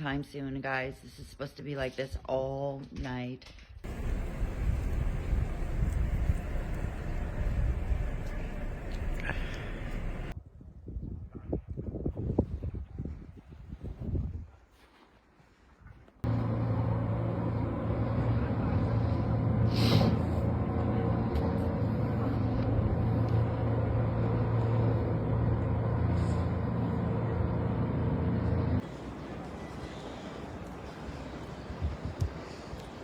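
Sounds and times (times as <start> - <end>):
large vehicle engine humming: 3.8 - 10.4, 16.2 - 31.4.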